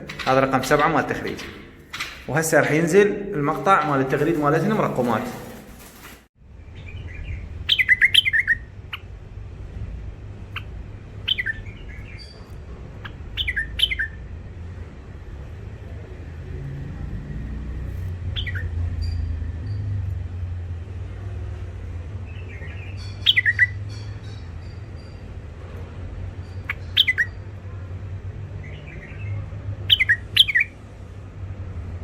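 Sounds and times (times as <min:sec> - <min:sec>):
birds chattering: 0:00.0 - 0:09.1, 0:10.5 - 0:14.3, 0:18.3 - 0:19.3, 0:22.1 - 0:30.8.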